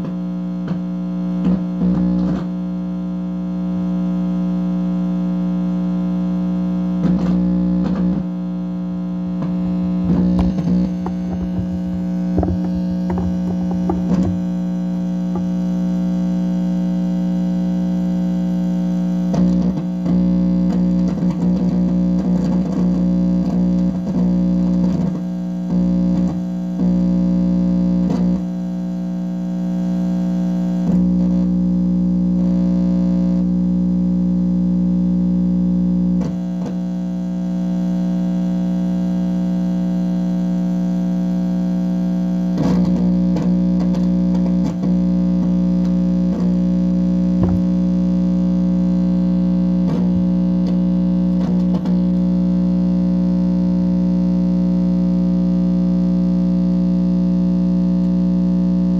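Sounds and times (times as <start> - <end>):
loud electronic buzz: 0.0 - 58.9
scattered crackles: 9.4 - 15.7.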